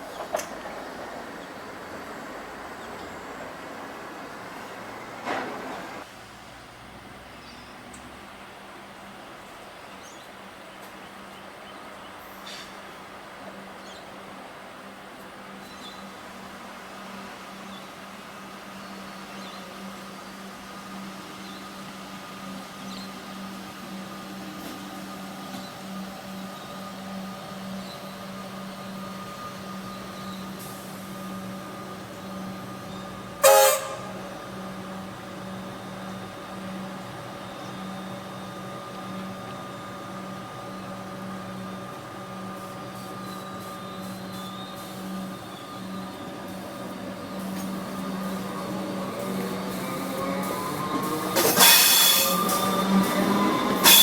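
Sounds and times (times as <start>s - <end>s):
electric train humming: 0.0s - 6.1s, 13.0s - 54.0s
train horn toot: 33.4s - 34.6s, 51.4s - 54.0s.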